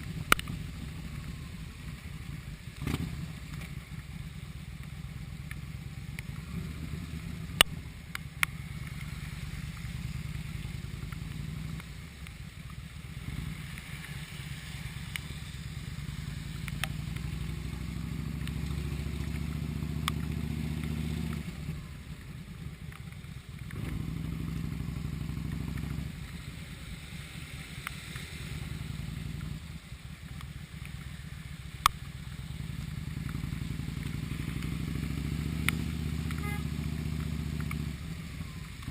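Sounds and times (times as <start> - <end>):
motorcycle engine riding: 0.0 - 38.9
sharp clicks: 16.6 - 17.4, 20.0 - 21.4.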